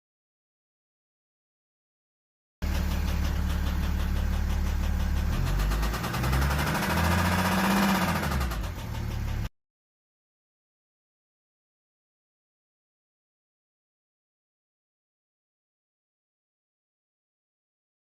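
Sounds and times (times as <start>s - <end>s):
diesel engine knocking at idle: 2.6s - 9.5s
engine revving: 2.6s - 9.5s.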